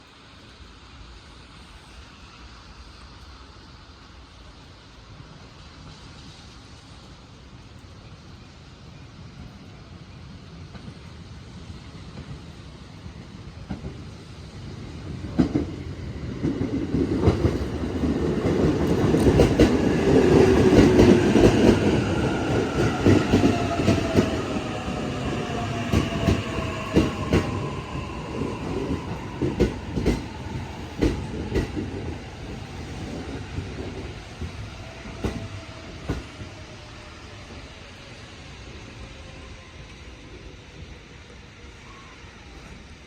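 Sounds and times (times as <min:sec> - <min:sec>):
train whine falling in pitch: 0:18.5 - 0:36.6.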